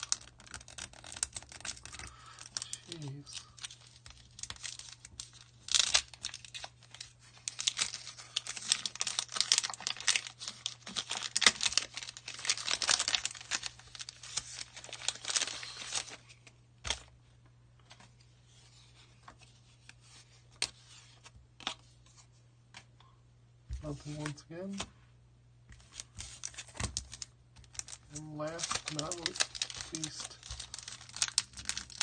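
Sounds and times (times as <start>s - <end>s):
foil wrapper tearing and crinkling: 0.0s - 17.1s, 25.8s - 32.0s.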